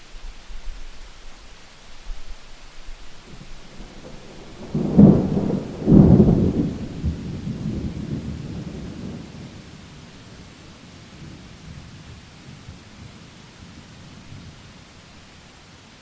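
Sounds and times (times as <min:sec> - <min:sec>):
rain hiss: 0:00.0 - 0:16.0
thunder: 0:03.3 - 0:09.7.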